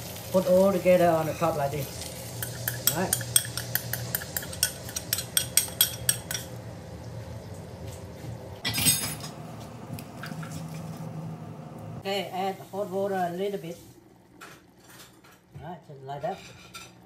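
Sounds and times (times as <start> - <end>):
fish fillet sizzling in pan: 0.0 - 5.9.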